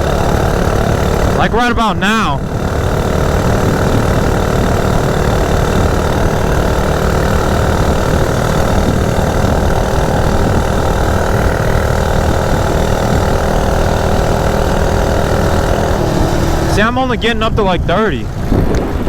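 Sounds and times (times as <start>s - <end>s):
minibike engine at high revs: 0.0s - 19.0s.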